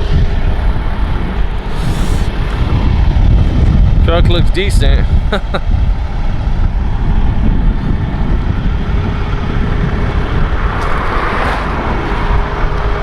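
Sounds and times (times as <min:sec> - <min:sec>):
semi truck rumbling: 0:00.0 - 0:13.0
hiss: 0:01.7 - 0:02.3.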